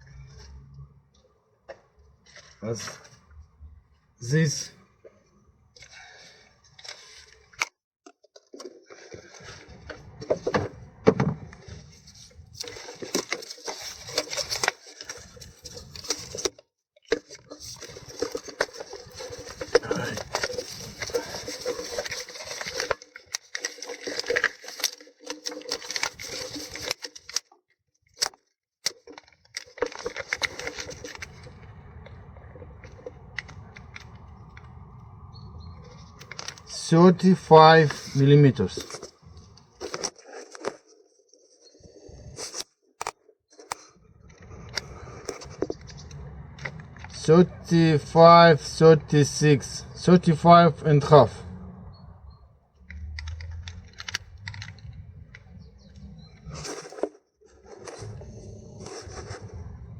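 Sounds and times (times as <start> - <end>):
metal parts and tools clattering: 17.1 - 27.4.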